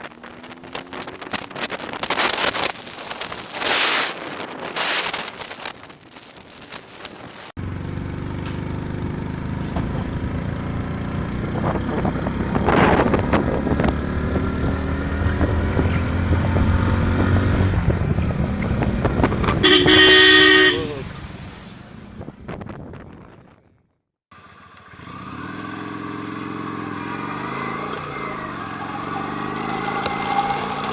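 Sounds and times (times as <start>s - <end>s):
road noise: 0.0s - 30.9s
motorcycle engine: 7.6s - 21.1s, 24.3s - 30.9s
vehicle horn blaring: 19.6s - 21.0s.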